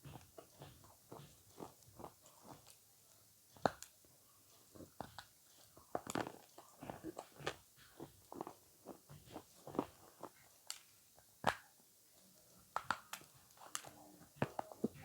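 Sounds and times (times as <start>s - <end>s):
chewing with mouth smacks: 0.1s - 2.8s, 4.5s - 10.8s.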